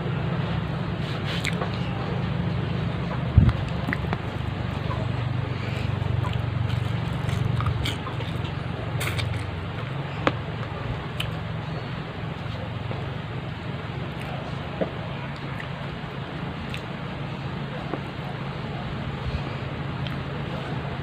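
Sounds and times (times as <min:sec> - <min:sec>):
low background hum: 0:00.0 - 0:21.0
chewing and mouth smacking: 0:01.2 - 0:01.8, 0:03.4 - 0:11.4, 0:14.1 - 0:14.5, 0:15.3 - 0:15.8, 0:16.6 - 0:17.0.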